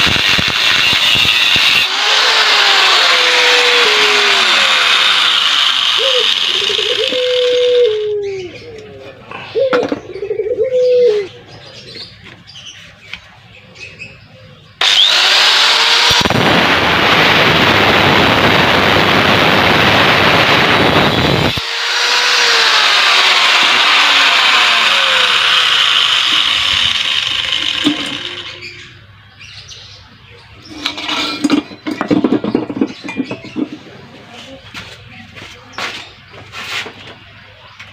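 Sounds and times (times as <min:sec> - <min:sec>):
angle grinder cutting steel: 0:00.0 - 0:08.1, 0:14.8 - 0:28.9.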